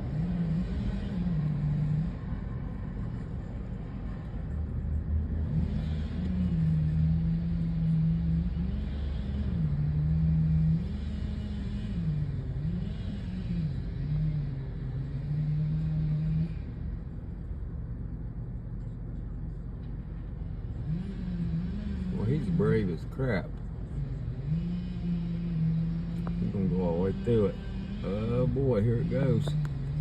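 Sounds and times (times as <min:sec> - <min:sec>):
chainsaw cutting tree trunk: 0:05.4 - 0:16.7, 0:24.3 - 0:30.0.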